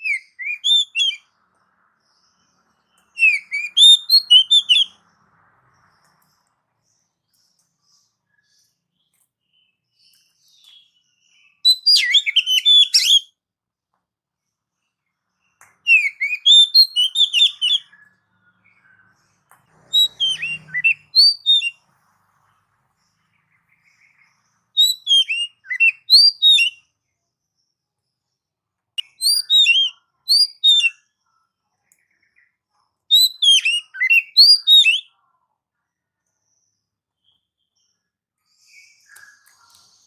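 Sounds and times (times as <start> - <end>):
bird singing whistled notes: 0.0 - 13.4, 15.4 - 21.8, 23.2 - 26.9, 29.0 - 31.2, 33.1 - 35.2.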